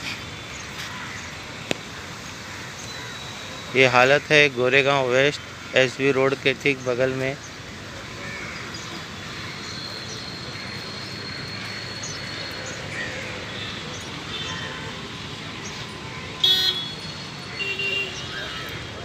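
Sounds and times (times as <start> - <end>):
street traffic noise: 0.0 - 19.0
vehicle horn honk: 16.4 - 18.3.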